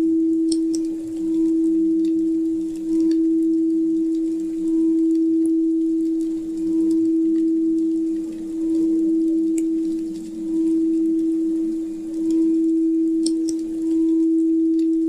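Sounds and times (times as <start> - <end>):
faint fire crackles: 0.0 - 15.0
pure tone: 0.0 - 15.0.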